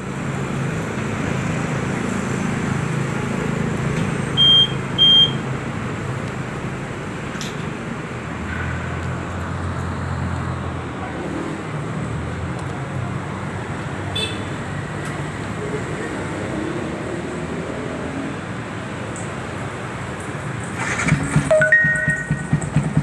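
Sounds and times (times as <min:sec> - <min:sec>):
motorcycle engine running: 0:20.8 - 0:23.0.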